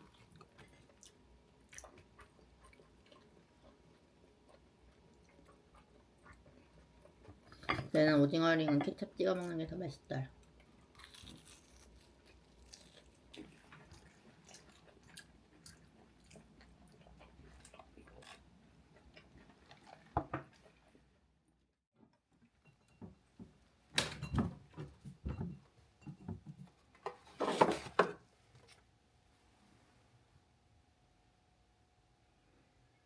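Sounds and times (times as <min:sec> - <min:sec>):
food crinkling and chewing: 0:00.0 - 0:07.9, 0:10.4 - 0:21.1.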